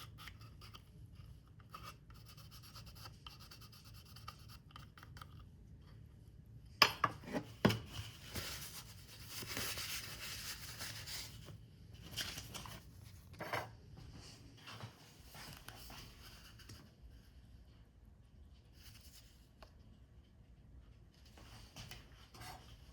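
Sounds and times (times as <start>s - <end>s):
paper rubbed and scraped: 8.1s - 11.5s.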